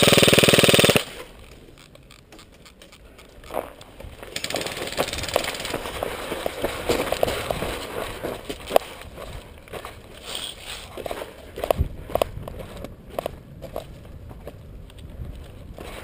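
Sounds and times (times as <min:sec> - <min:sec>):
airsoft rifle full-auto burst: 0:00.0 - 0:01.2, 0:04.4 - 0:05.7
footsteps through dry undergrowth: 0:03.4 - 0:16.0.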